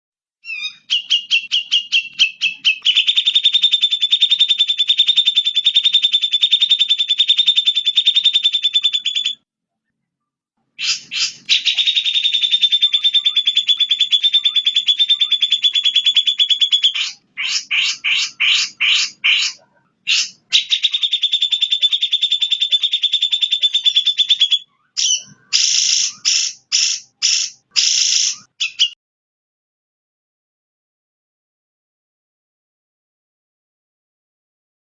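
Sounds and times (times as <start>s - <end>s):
songbird rattling trills: 10.9s - 29.0s.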